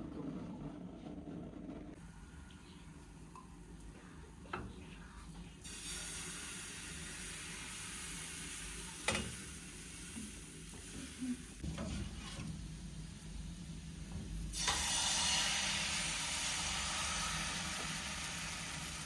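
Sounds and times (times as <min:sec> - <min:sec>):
food sizzling in a frying pan: 0:05.6 - 0:13.7, 0:14.5 - 0:19.0.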